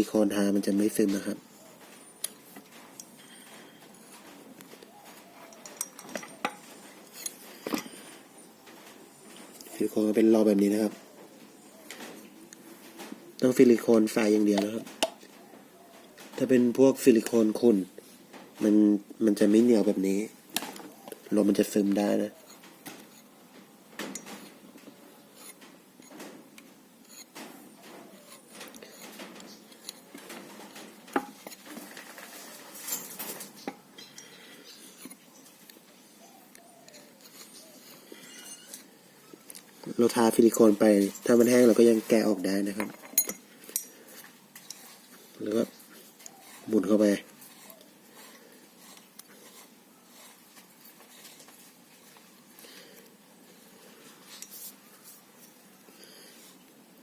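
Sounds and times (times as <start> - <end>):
small metal parts clinking: 5.5 - 7.9, 42.8 - 44.0
metal valve scraping and clicking: 25.4 - 27.4.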